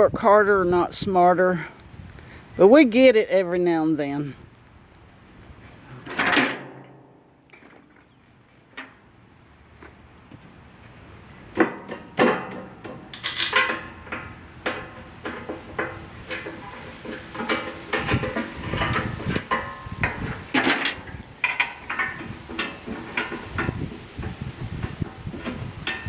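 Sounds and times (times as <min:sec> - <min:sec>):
metal tools clanking: 0:05.9 - 0:09.0, 0:11.6 - 0:26.0.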